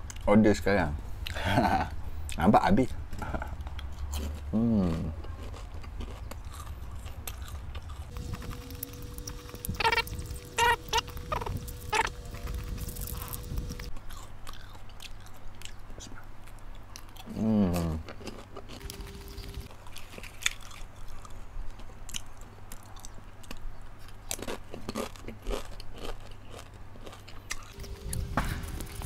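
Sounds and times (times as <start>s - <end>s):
crunchy popcorn chewing: 3.2s - 29.0s
person humming: 4.6s - 5.2s, 17.3s - 18.0s.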